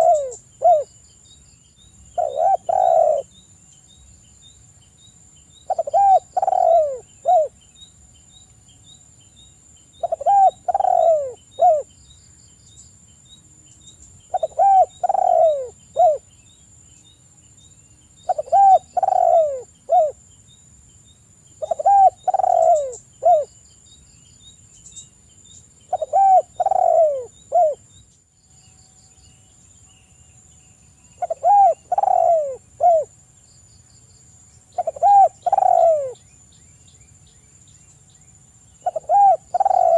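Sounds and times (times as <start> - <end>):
dove cooing: 0.0 - 0.9, 2.2 - 3.3, 5.7 - 7.6, 10.0 - 11.9, 14.3 - 16.2, 18.3 - 20.2, 21.6 - 23.5, 25.9 - 27.8, 31.2 - 33.1, 34.8 - 36.2, 38.8 - 39.9.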